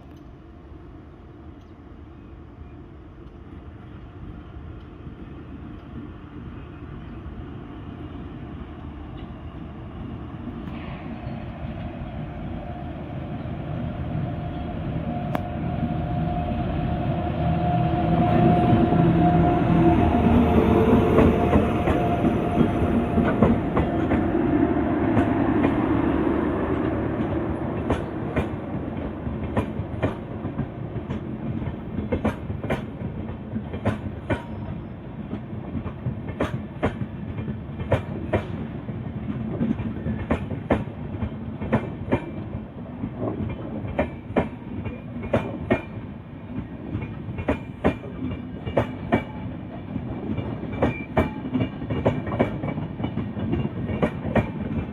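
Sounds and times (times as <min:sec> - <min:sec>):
train heavy rumble: 0:00.0 - 0:54.9
train wheels clicking over rail joints: 0:26.7 - 0:54.9.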